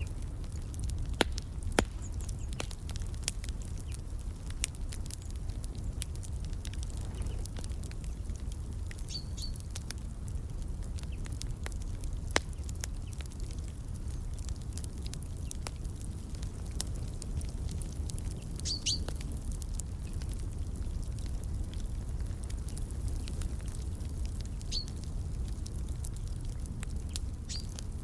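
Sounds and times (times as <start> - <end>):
fire crackling and popping: 0.0 - 28.0
bird chirping: 9.1 - 9.6, 18.6 - 19.0.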